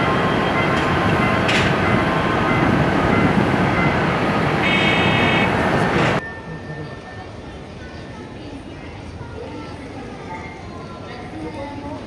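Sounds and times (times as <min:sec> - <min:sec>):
train rumbling on rails: 0:00.0 - 0:06.2
wheels clacking over rail joint: 0:00.0 - 0:06.2.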